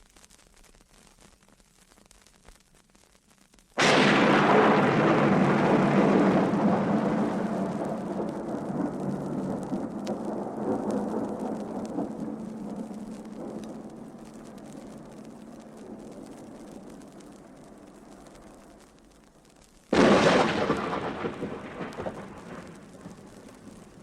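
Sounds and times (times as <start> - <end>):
record surface crackle: 0.0 - 24.0
loud crash: 3.8 - 10.0
noisy rumble: 3.8 - 24.0.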